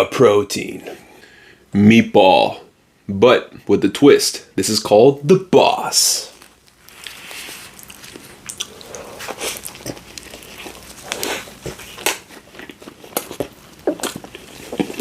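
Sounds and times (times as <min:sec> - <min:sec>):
biting and chewing crunches: 0:06.2 - 0:15.0.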